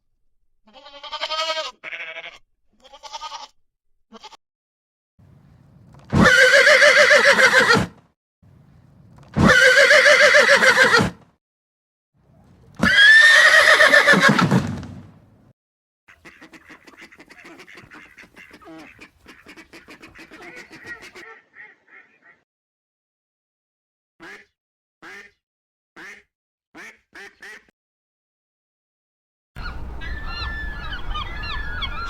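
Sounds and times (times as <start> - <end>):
loud quavering animal calls: 6.1 - 7.9, 9.4 - 11.1, 16.1 - 22.4, 29.6 - 32.0.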